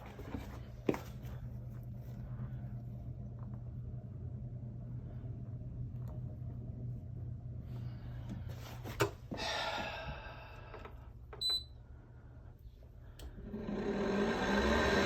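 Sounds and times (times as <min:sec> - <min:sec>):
fan motor running: 0:00.0 - 0:15.0
low hum: 0:00.0 - 0:15.0.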